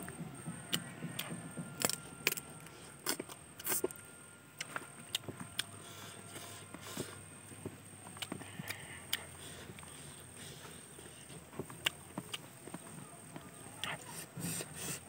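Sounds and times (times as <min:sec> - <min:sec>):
chewing fried chicken: 0:04.6 - 0:15.0.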